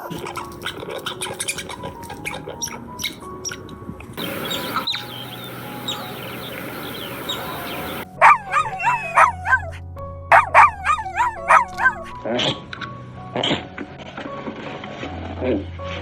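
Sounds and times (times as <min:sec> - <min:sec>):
background music: 0:00.0 - 0:16.0
steady hiss: 0:04.2 - 0:08.0.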